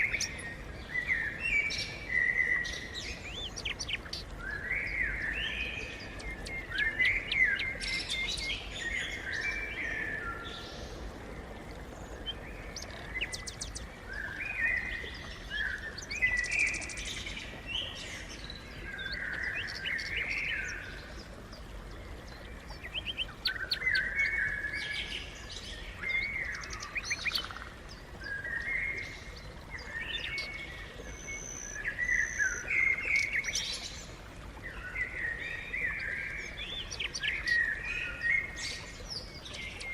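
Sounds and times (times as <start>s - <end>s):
sparrows chirping: 3.2s - 9.2s, 12.3s - 13.9s, 26.1s - 27.6s.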